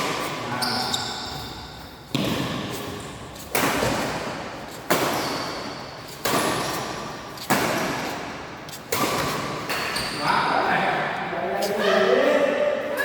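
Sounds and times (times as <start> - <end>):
rackets hitting shuttlecock: 0.0 - 10.4.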